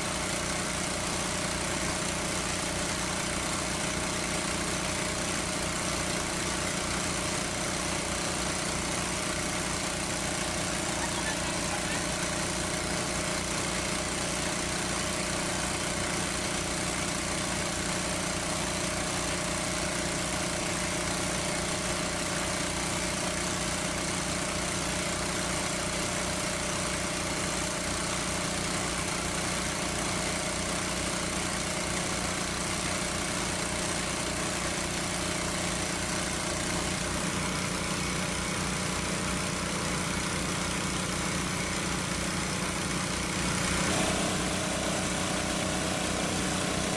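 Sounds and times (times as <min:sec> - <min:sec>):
small engine running: 0:00.0 - 0:46.9.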